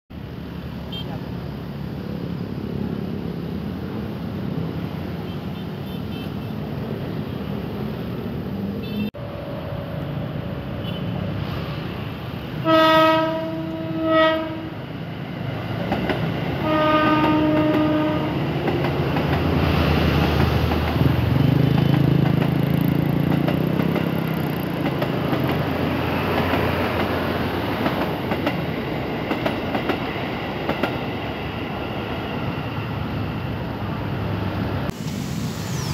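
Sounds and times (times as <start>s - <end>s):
train rumbling past: 6.6s - 35.9s
train horn blasts: 12.6s - 14.8s, 16.6s - 18.4s.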